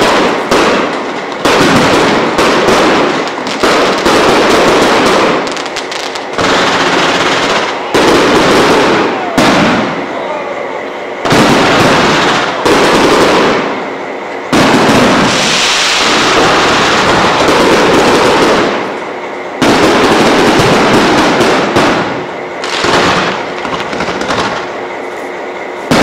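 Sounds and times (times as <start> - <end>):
fireworks crackling and popping: 0.0 - 26.0.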